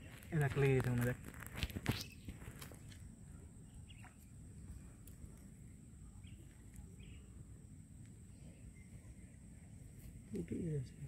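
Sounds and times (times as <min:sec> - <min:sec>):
faint bird chirps: 0:01.8 - 0:11.0.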